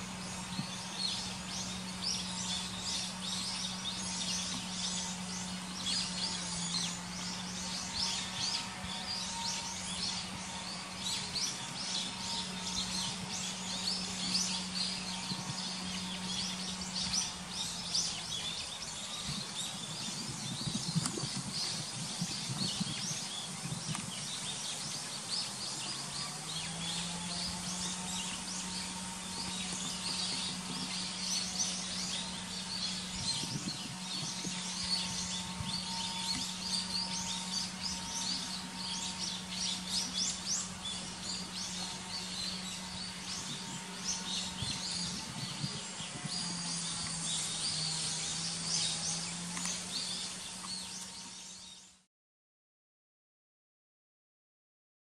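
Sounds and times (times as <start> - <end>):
birds chirping and singing: 0.0 - 52.0.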